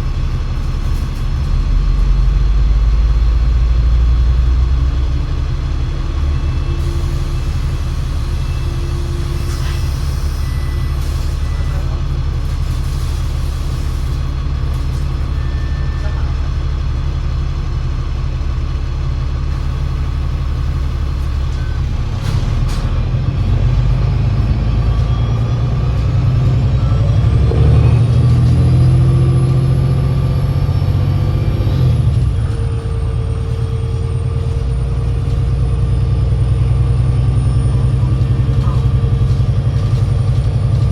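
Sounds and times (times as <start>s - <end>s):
bus diesel engine idling: 0.0s - 40.9s
bus engine and drivetrain whine: 0.0s - 40.9s.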